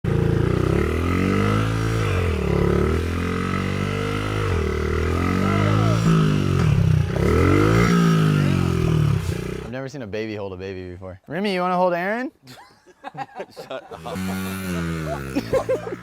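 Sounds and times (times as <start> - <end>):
small motorbike engine revving: 0.1 - 9.7, 13.9 - 16.0.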